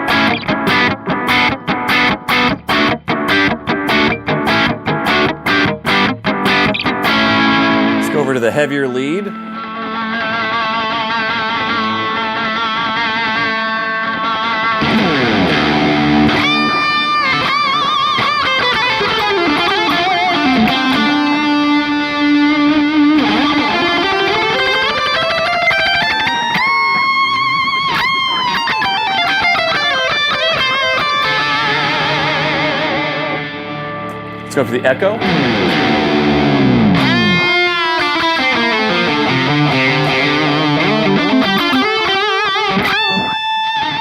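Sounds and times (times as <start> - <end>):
distorted electric guitar with delay: 0.0 - 44.0.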